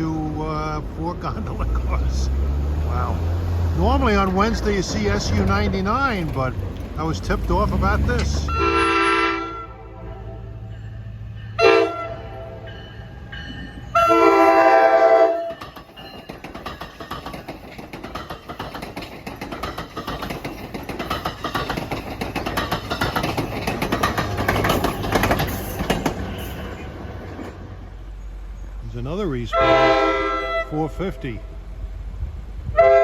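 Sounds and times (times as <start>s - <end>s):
train passing rumble: 0.0s - 33.0s
wheels clicking over rail joints: 1.2s - 9.4s, 12.8s - 28.0s
train horn blasts: 8.4s - 10.7s, 11.6s - 12.7s, 13.9s - 15.6s, 29.5s - 30.8s, 32.7s - 33.0s.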